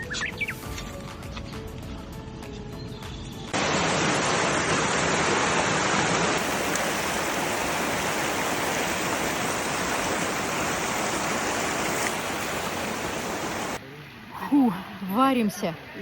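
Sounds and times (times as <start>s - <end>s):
river water rushing: 3.5s - 13.8s.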